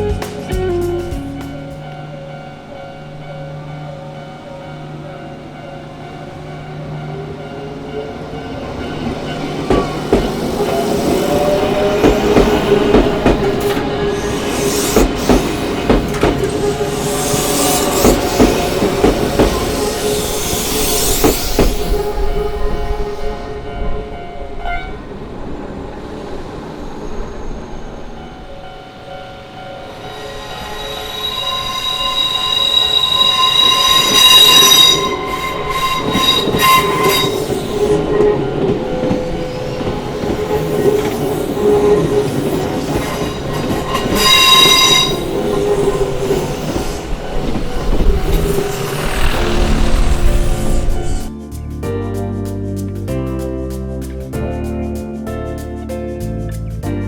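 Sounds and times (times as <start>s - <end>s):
train passing: 0.0s - 52.5s
steel wheels squealing on rails: 7.7s - 51.5s
crossing alarm ringing: 28.2s - 49.2s.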